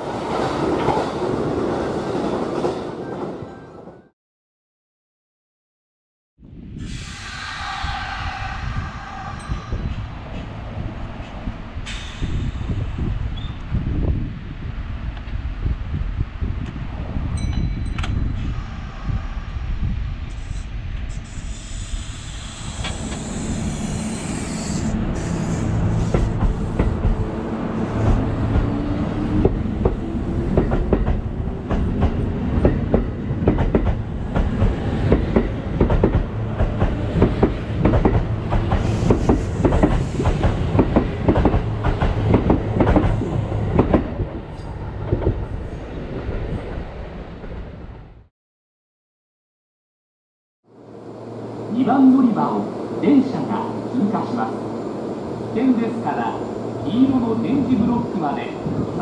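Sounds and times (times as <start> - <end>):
train motor whine: 18.4 - 27.3.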